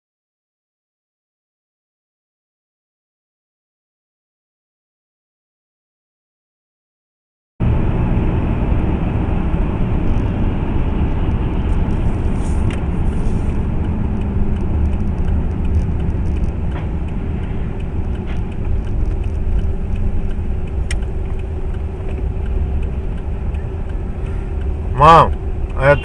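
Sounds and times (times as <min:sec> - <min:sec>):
car engine and road noise: 0:07.6 - 0:26.0
faint ticks: 0:12.6 - 0:26.0.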